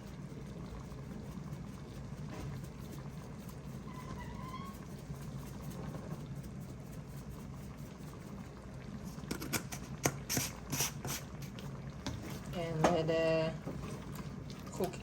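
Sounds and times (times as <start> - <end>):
pot of curry rumbling: 0.0 - 15.0.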